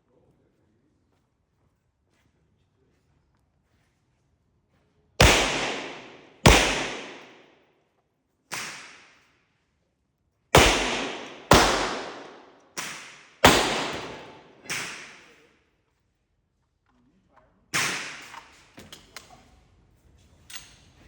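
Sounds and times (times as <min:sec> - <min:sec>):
pistol shots with echo: 0:05.2 - 0:07.4, 0:10.6 - 0:15.3, 0:17.8 - 0:18.4.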